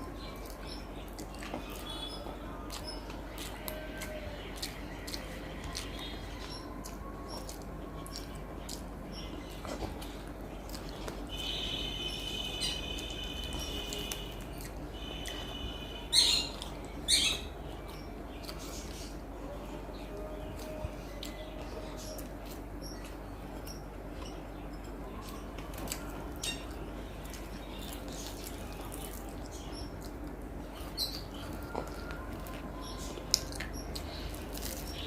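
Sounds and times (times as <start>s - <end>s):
steady low hum: 0.0s - 35.0s
bird chirping: 10.9s - 19.2s, 30.7s - 35.0s.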